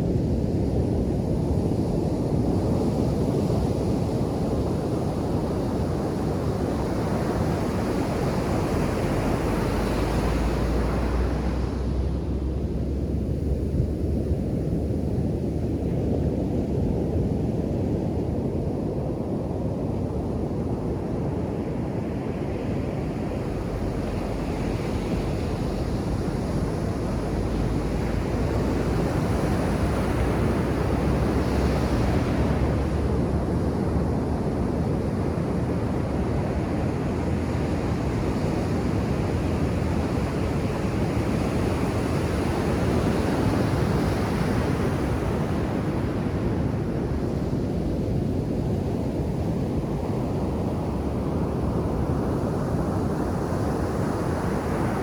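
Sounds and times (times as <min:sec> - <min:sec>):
wind rumbling on microphone: 0:00.0 - 0:55.0
ocean surf breaking on beach: 0:06.5 - 0:14.4, 0:21.5 - 0:55.0.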